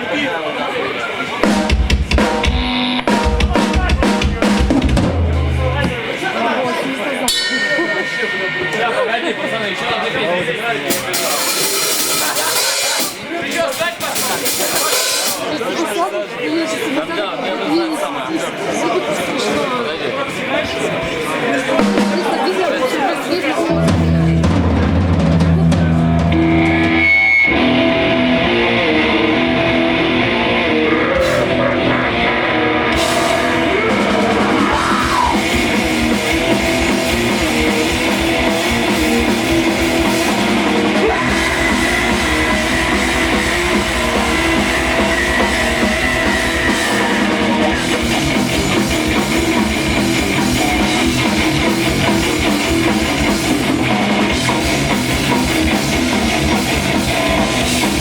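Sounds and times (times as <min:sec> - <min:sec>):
electric guitars: 0:01.4 - 0:06.3, 0:23.6 - 0:58.0
drum kit: 0:01.4 - 0:06.4, 0:10.8 - 0:15.6, 0:21.8 - 0:22.6, 0:23.7 - 0:58.0.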